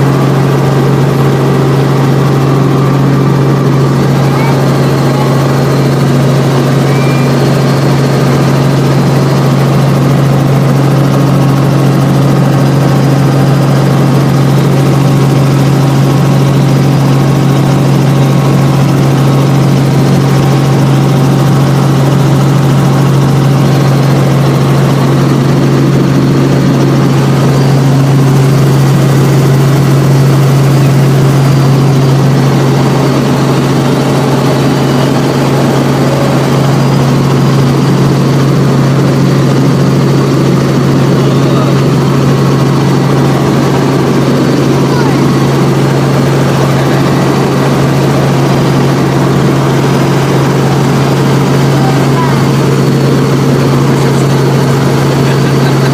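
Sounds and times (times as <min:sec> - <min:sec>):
helicopter drone: 0:00.0 - 0:55.9.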